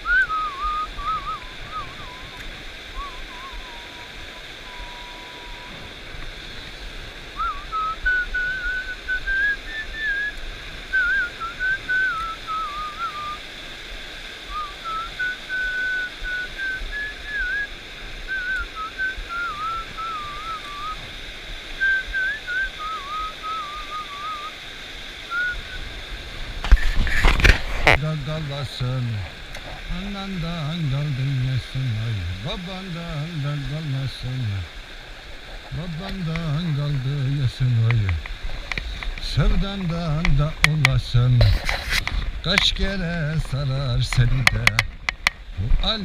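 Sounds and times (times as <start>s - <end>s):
person whistling a tune: 0.0s - 2.4s, 3.0s - 5.8s, 7.4s - 13.4s, 14.5s - 17.7s, 18.3s - 21.0s, 21.8s - 24.5s, 25.3s - 25.8s
stream rushing: 0.0s - 46.0s.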